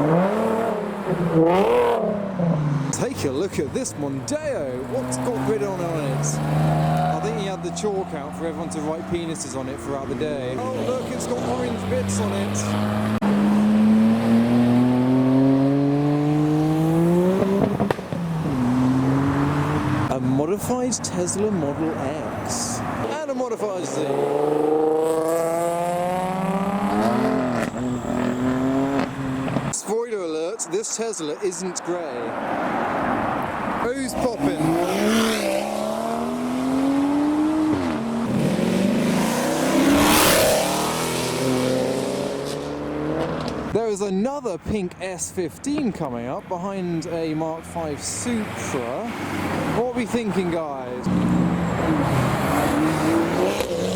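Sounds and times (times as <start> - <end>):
car rushing past: 0.0 - 3.8, 4.4 - 21.2, 21.8 - 29.8, 32.1 - 43.8, 47.5 - 53.9
car engine accelerating: 0.0 - 29.8, 32.6 - 43.8, 50.9 - 53.9.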